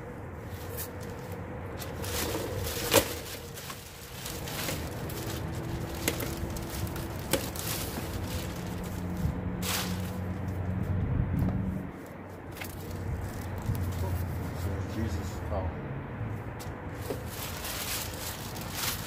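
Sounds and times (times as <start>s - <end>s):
bag rustling: 0.6s - 10.3s, 17.0s - 19.0s.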